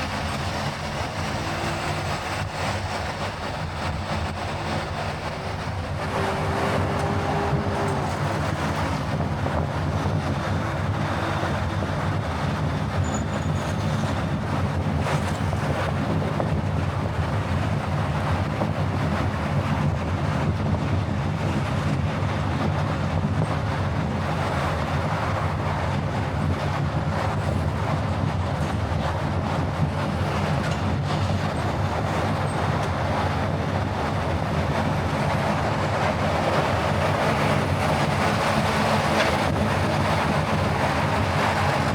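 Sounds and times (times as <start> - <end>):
car engine hum: 0.0 - 12.9
tyre and road noise: 0.0 - 41.9.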